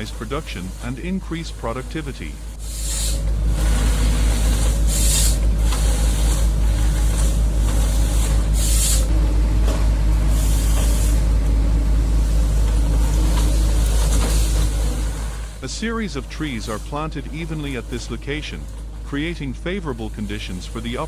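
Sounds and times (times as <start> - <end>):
diesel engine under load: 0.0 - 21.0
short hiss bursts: 2.6 - 6.5.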